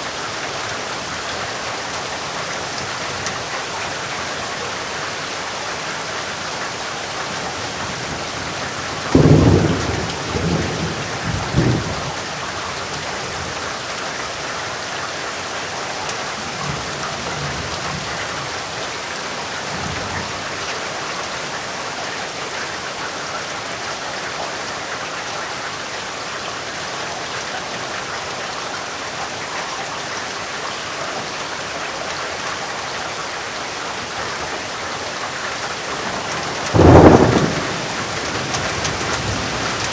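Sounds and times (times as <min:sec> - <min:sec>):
steady rain: 0:00.0 - 0:39.9
thunder clap and rumble: 0:08.2 - 0:12.4, 0:35.9 - 0:39.9.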